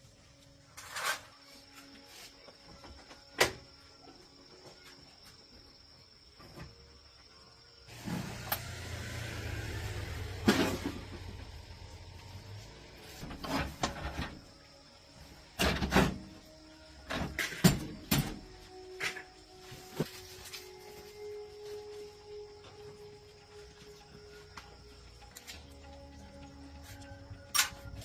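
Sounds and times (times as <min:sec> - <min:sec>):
motor humming: 0:07.9 - 0:13.0.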